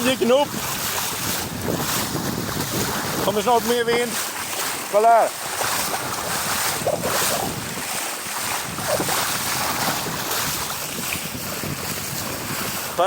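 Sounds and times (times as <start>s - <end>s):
water rushing along a hull: 0.0s - 13.0s
wind buffeting microphone: 0.0s - 13.0s.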